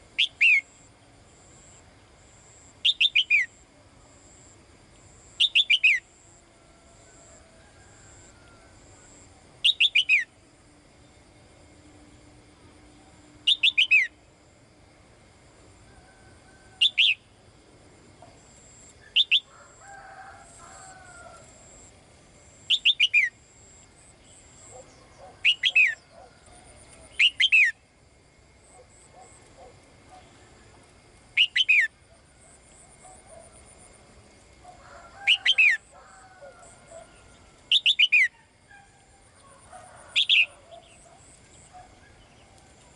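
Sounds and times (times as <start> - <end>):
songbird calling: 0.2 - 0.8, 2.8 - 3.6, 5.4 - 6.1, 9.0 - 10.4, 13.4 - 14.2, 16.8 - 17.3, 18.3 - 19.5, 22.7 - 23.4, 24.2 - 27.8, 31.4 - 32.0, 35.2 - 42.9.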